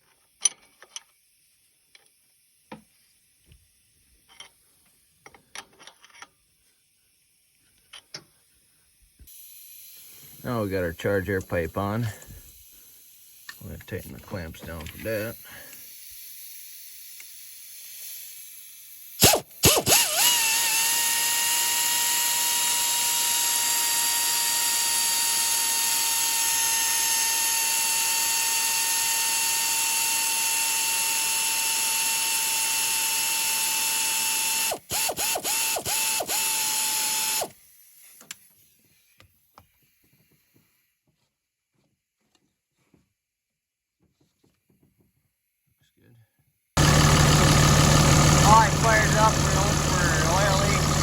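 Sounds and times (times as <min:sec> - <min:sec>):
power tool trigger blips: 0:19.2 - 0:28.8, 0:32.0 - 0:37.5, 0:46.8 - 0:51.0
cordless power tool whining: 0:19.2 - 0:37.6, 0:46.8 - 0:51.0.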